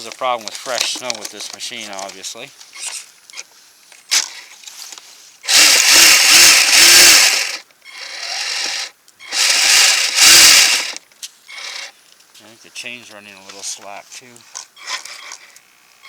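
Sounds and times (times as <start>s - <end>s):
electric motor revving: 2.7s - 3.1s, 5.4s - 11.9s, 14.7s - 16.0s
tracks grinding in snow: 4.0s - 7.6s, 8.2s - 15.6s.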